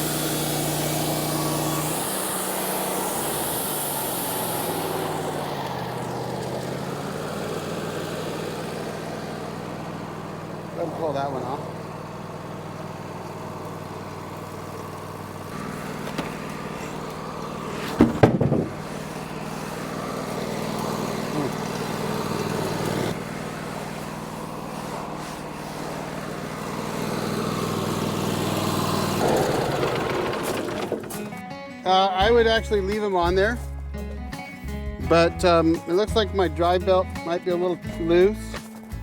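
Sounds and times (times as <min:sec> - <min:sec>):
sawmill engine running: 0:00.0 - 0:31.5
loud clatter: 0:15.5 - 0:19.0, 0:29.2 - 0:31.4.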